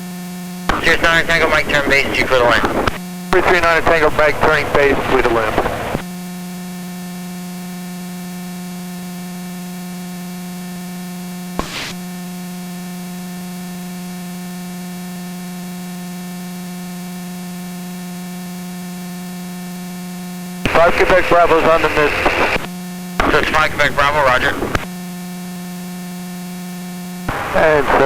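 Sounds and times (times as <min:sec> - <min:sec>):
radio hum with hiss: 0:00.0 - 0:28.0
brief radio burst: 0:00.7 - 0:06.0, 0:20.7 - 0:24.9, 0:27.3 - 0:28.0.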